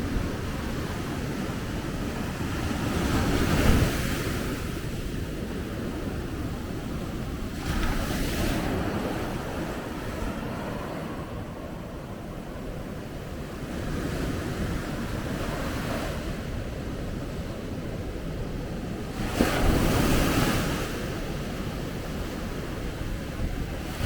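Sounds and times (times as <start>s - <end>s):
surf rushing: 7.5s - 13.4s.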